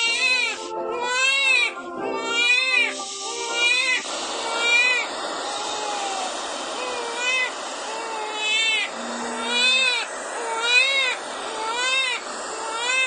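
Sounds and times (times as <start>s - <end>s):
baby crying: 0.0s - 13.0s
steady white-noise hiss: 2.7s - 13.0s.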